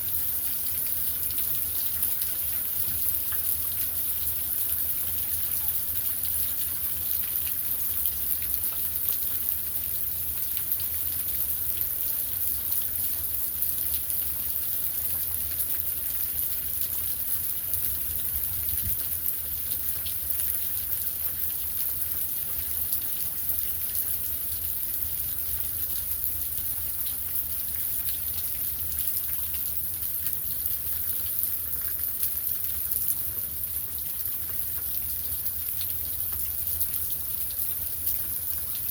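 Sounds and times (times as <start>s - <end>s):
heavy rain pattering: 13.8s - 38.9s.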